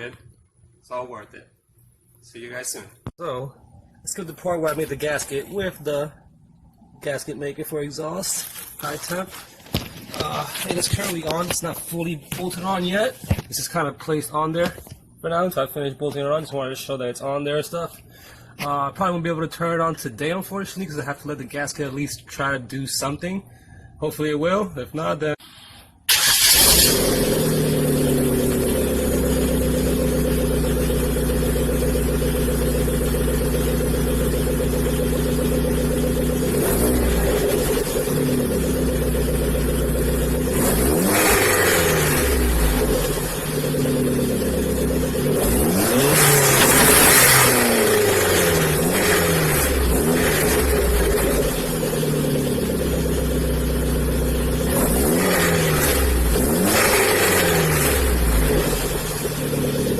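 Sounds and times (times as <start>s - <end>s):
car engine idling and revving: 26.1s - 59.9s.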